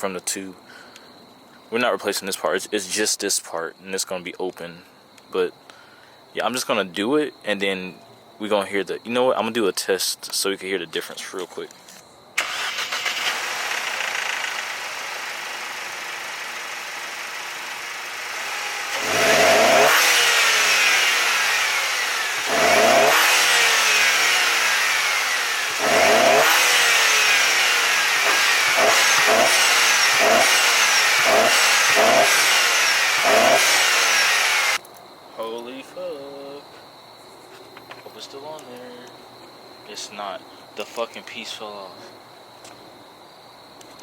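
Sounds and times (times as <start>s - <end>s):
car engine revving: 12.4s - 34.8s.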